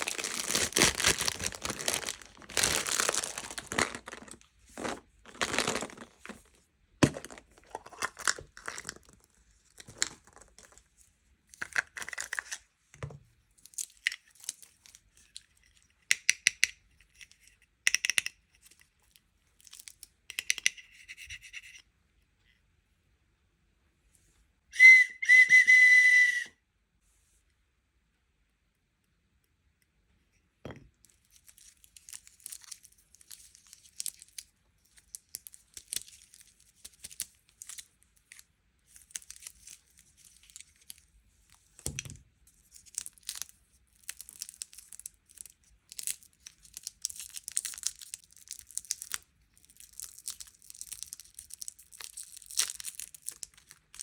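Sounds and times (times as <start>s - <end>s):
plastic packaging crinkling and tearing: 0.0s - 10.9s, 31.2s - 41.8s, 42.6s - 54.0s
short loud whistle-like tone: 24.7s - 26.6s.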